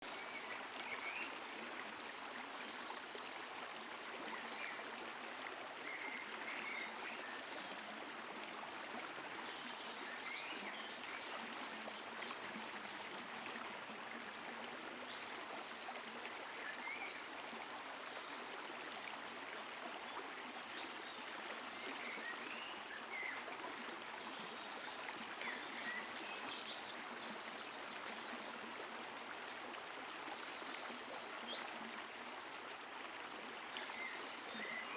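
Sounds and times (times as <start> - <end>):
stream flowing: 0.0 - 34.9.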